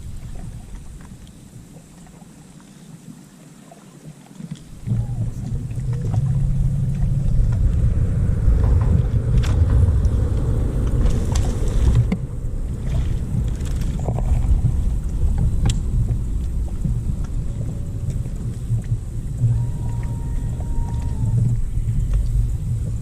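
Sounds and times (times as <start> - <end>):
wind rushing over microphone: 0.0 - 2.0, 4.6 - 23.0
outboard motor running: 4.7 - 23.0.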